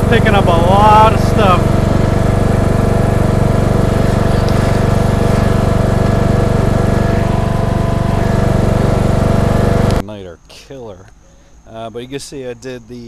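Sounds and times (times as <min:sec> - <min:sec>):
riding lawn mower engine: 0:00.0 - 0:10.0.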